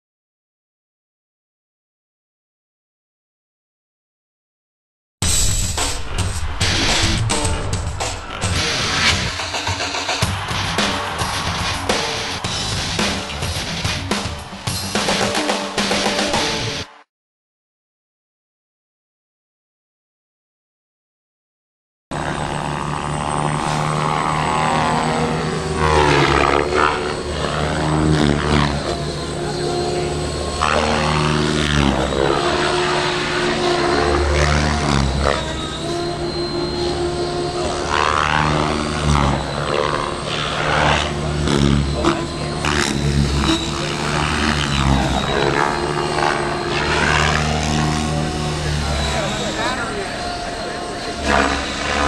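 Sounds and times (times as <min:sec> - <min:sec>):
model helicopter rotor whine: 0:05.3 - 0:16.9, 0:22.1 - 0:52.0.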